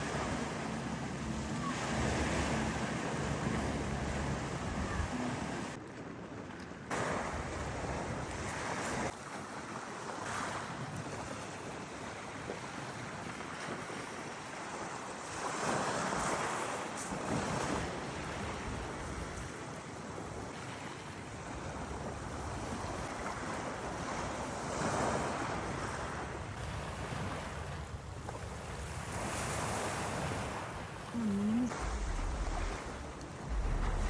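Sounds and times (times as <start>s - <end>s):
sea waves washing in: 0.0s - 5.8s, 20.3s - 34.0s
wind rumbling on microphone: 24.8s - 34.0s.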